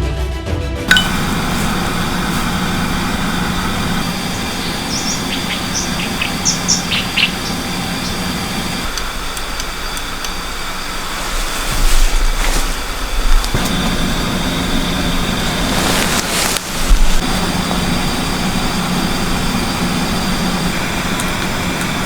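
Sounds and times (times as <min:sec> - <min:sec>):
high bird chirps: 0:00.9 - 0:08.9
low steady hum: 0:00.9 - 0:22.0
outdoor rush of noise: 0:00.9 - 0:22.0.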